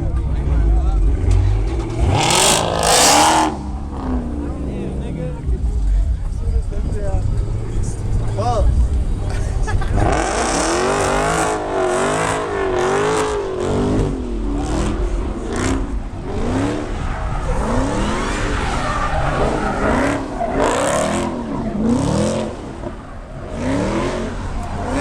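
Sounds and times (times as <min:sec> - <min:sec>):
car engine revving hard: 0:00.8 - 0:05.6, 0:09.8 - 0:25.0
tyres squealing: 0:16.4 - 0:25.0.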